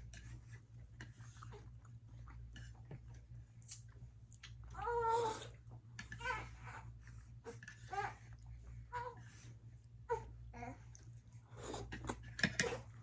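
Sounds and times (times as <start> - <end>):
baby whining cry: 6.2 - 6.8.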